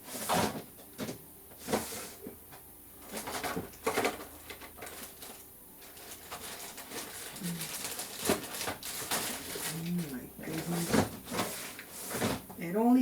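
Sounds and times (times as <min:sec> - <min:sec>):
small objects rattling in drawer: 0:03.0 - 0:12.5.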